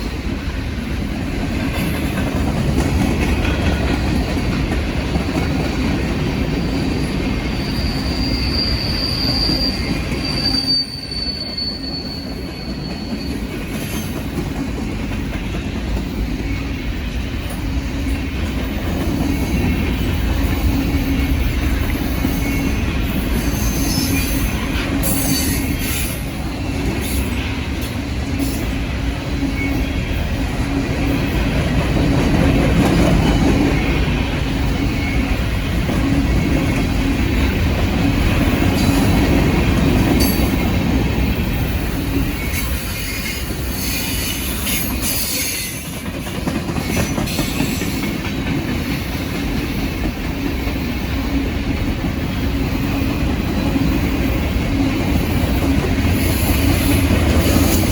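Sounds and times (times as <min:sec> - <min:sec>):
train wheels rumbling on rail: 0:00.0 - 0:57.9
wheel squeal: 0:06.6 - 0:14.2, 0:22.3 - 0:26.2.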